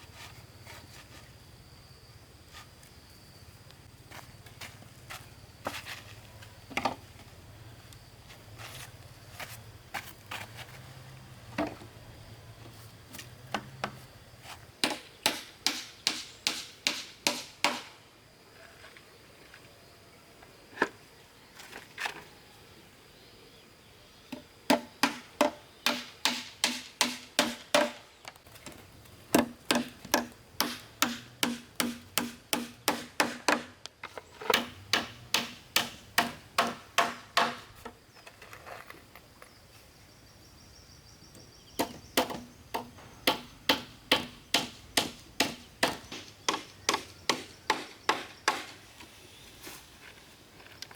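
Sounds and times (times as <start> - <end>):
hand tool striking wood: 14.8 - 17.9, 24.3 - 28.0, 29.3 - 38.0, 41.8 - 48.8.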